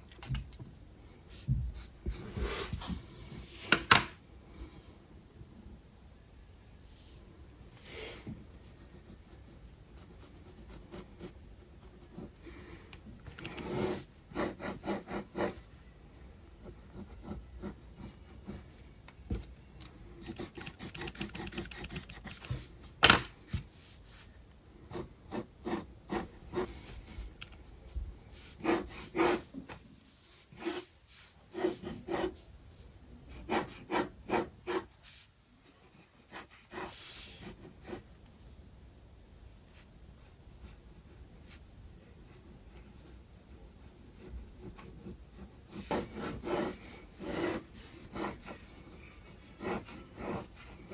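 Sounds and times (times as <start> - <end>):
pencil scratching on paper: 8.4 - 12.4, 13.3 - 19.5, 20.2 - 27.4, 28.2 - 38.2, 39.5 - 50.9.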